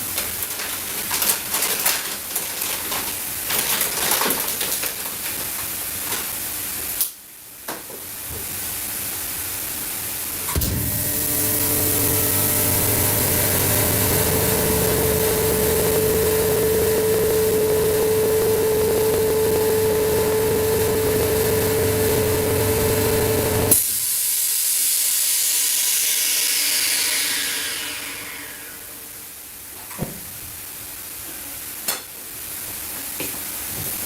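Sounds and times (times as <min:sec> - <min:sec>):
electric air pump humming: 0:10.3 - 0:29.2.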